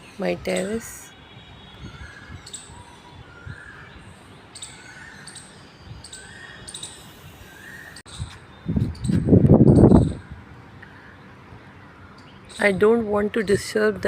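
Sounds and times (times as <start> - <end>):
bird calling: 1.8 - 10.2
wind or handling rumble on microphone: 8.1 - 10.5.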